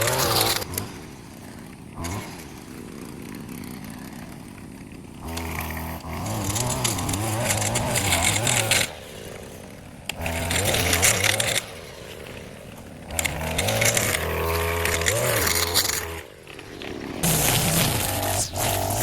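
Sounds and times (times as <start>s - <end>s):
cutting through grass hiss: 0.0s - 4.4s, 5.3s - 19.0s
small gas engine revving: 0.0s - 19.0s.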